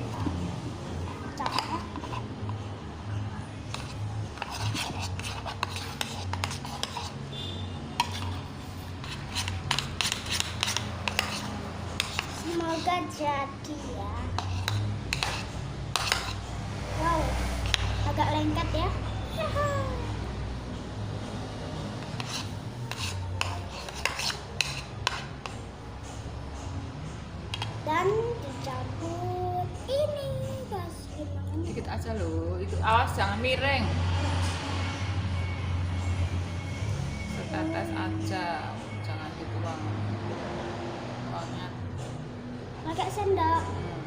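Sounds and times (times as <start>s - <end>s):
utensil stirring slime in bowl: 1.4s - 2.7s, 3.7s - 13.2s, 14.2s - 16.5s, 22.0s - 25.5s.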